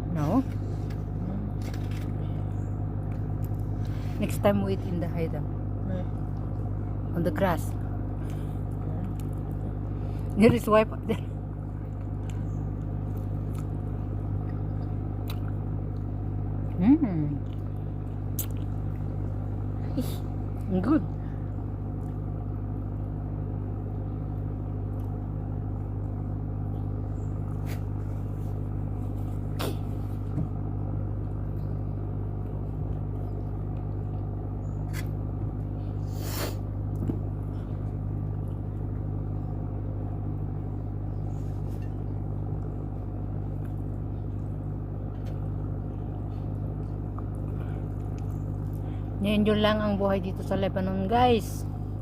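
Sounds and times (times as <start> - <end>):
low mechanical hum: 0.0 - 52.0.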